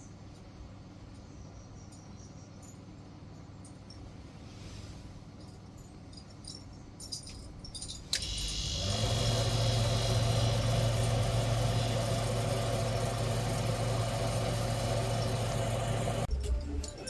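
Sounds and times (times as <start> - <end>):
compressor running hum: 8.1 - 16.3.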